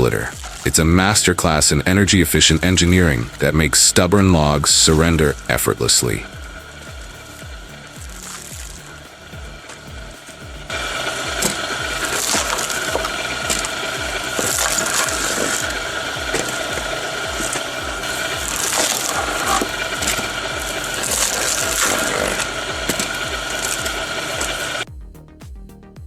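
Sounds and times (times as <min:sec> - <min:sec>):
wood cracking and splitting: 0:00.0 - 0:24.8
wood-splitting machine running: 0:00.0 - 0:24.9
background music with beat: 0:00.0 - 0:26.0.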